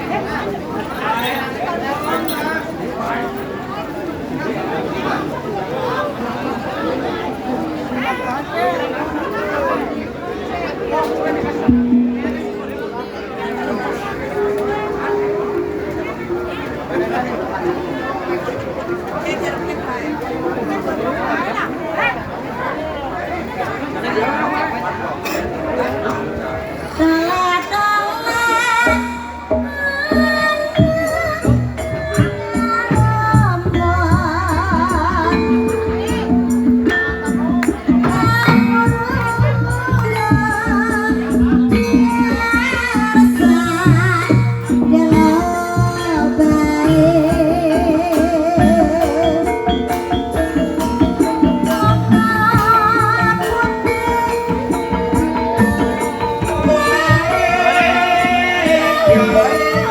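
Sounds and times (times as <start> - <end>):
gamelan music: 0.0 - 3.8, 7.5 - 19.6, 24.0 - 59.9
ringing pitched percussion: 10.5 - 17.4, 28.8 - 59.9
drum strokes: 11.0 - 12.9, 28.9 - 59.9
wavering melody line: 29.6 - 59.9.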